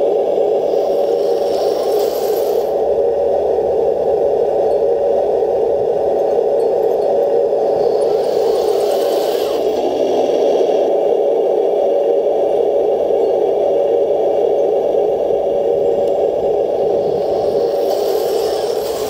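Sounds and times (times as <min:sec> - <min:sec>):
hiss: 0:00.0 - 0:03.2, 0:07.3 - 0:19.0
electric motors whirring with rattle: 0:00.0 - 0:11.0, 0:14.4 - 0:19.0.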